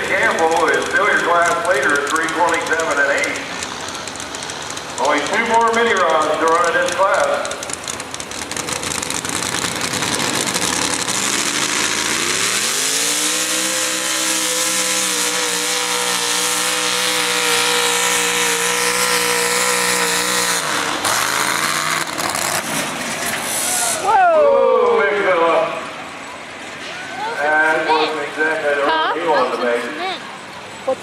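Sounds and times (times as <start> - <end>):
tractor engine at full throttle: 0.0 - 24.1.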